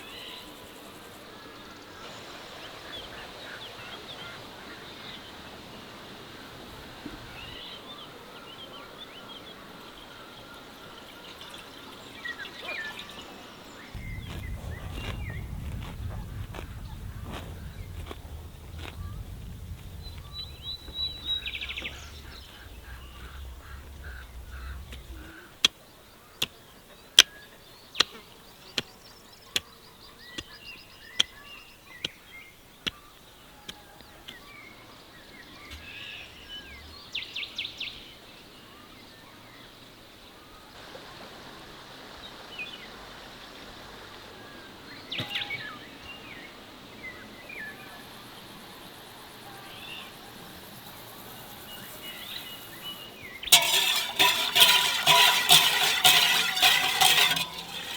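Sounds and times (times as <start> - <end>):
birds chirping: 7.3 - 33.5.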